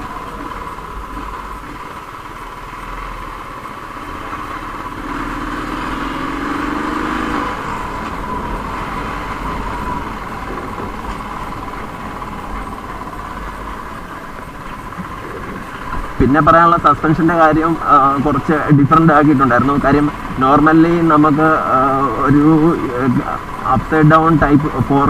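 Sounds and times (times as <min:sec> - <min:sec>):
steady high-pitched drone: 0:00.0 - 0:25.0
vehicle passing: 0:00.0 - 0:25.0.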